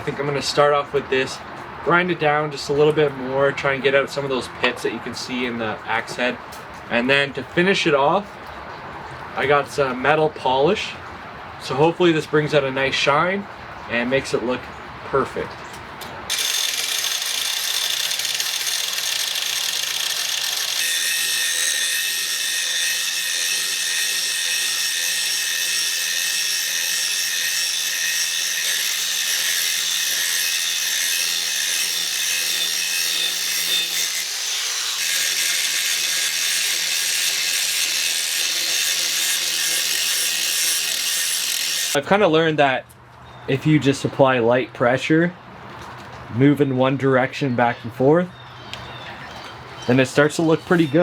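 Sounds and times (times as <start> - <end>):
grinding disc on steel: 16.3 - 42.0.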